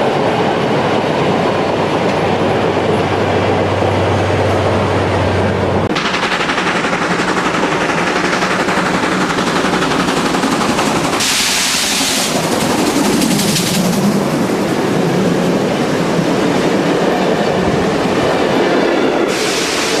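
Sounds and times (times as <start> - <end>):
steam locomotive exhaust beats: 5.7 - 18.4, 19.1 - 20.0
steam locomotive hiss: 10.0 - 13.9, 19.2 - 20.0.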